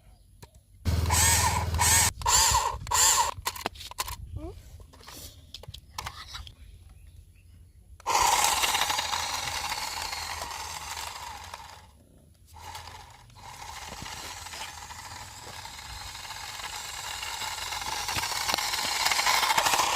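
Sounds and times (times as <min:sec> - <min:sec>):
toy car electric motor whirring: 0:00.9 - 0:04.2, 0:08.0 - 0:19.9.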